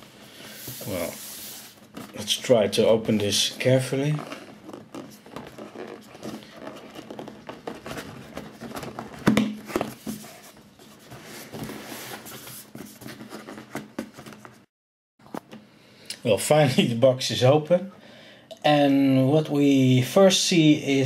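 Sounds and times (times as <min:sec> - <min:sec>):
cardboard crackling and rustling: 0:00.6 - 0:14.7.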